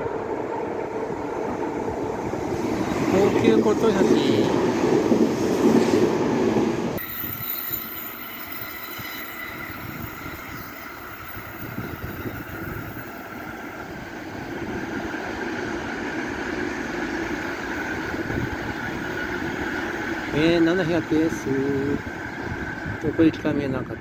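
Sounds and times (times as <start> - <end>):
train wheel and rail noise: 0.0 - 24.0.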